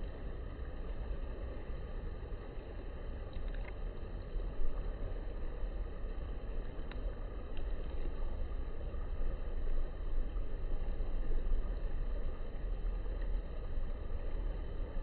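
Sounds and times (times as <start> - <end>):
low outdoor rumble: 0.0 - 15.0
faint tick: 3.2 - 5.0, 6.0 - 15.0.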